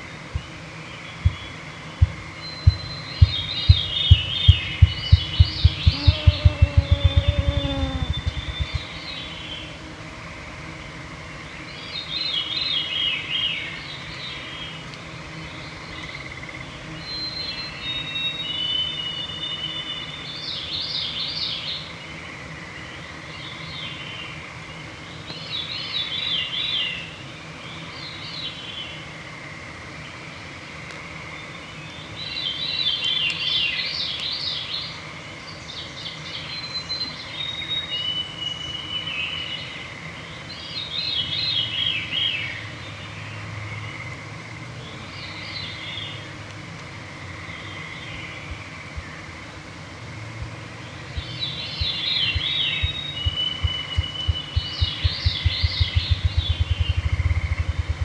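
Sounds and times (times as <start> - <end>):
songbirds singing: 0.0 - 9.9, 10.7 - 29.0, 31.4 - 46.6, 47.2 - 49.6, 50.4 - 58.0
faint high hum: 0.0 - 13.1, 47.6 - 58.0
whistled bird notes: 51.2 - 58.0.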